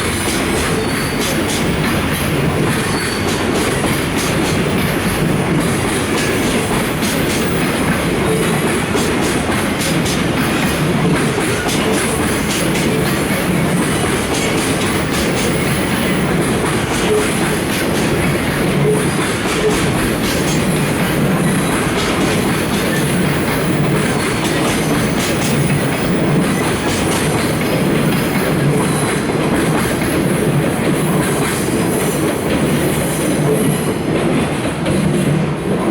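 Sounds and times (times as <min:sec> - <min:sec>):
train wheels clacking on rails: 0:00.0 - 0:35.9
wheel squeal: 0:00.6 - 0:01.8, 0:02.8 - 0:03.7.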